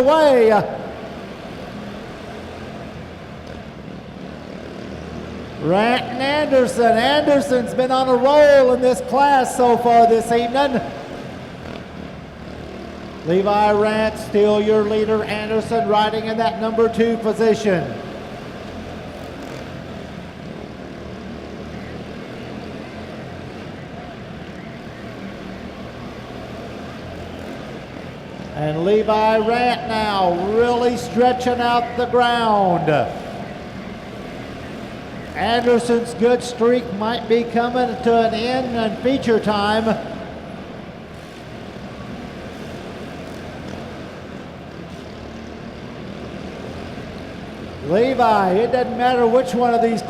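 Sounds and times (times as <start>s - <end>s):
small race car engines droning: 0.0s - 50.0s.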